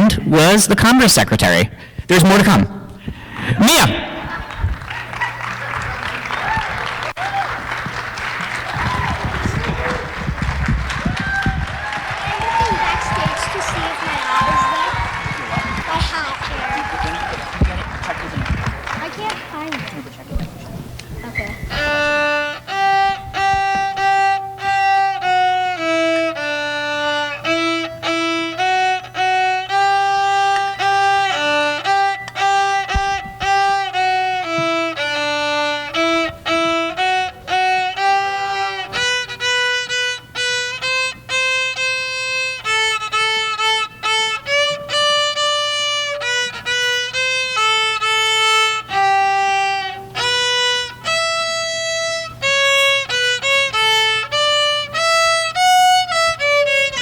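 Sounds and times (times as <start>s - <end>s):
solo violin melody: 6.4s - 57.0s.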